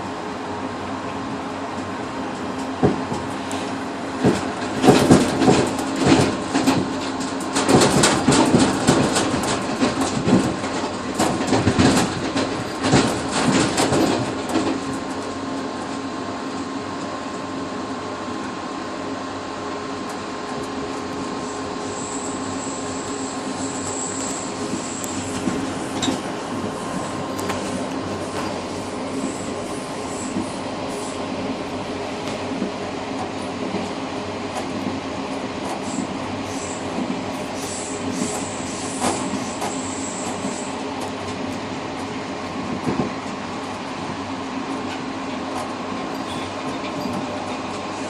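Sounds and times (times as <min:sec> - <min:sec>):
train rolling noise with hum: 0:00.0 - 0:48.0
train wheels clattering over joints: 0:02.4 - 0:16.1, 0:24.2 - 0:48.0
faint high squeal: 0:21.8 - 0:25.3, 0:46.2 - 0:47.2.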